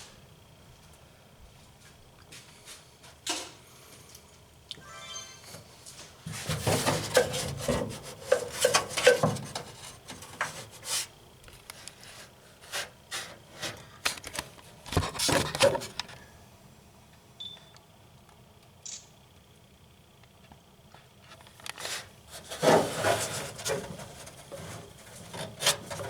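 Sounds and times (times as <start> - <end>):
objects rubbing and scraping: 21.8 - 26.0.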